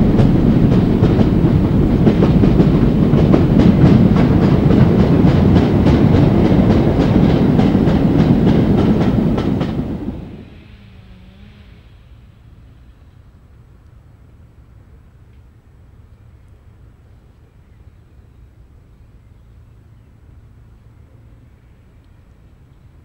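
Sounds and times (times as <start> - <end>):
goods train wheels clicking: 0.0 - 10.7.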